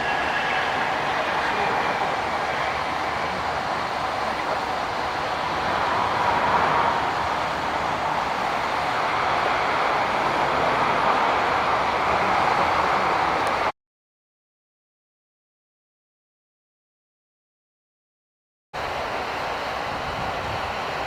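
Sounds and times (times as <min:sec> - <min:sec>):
jet engines roaring: 0:00.0 - 0:13.7.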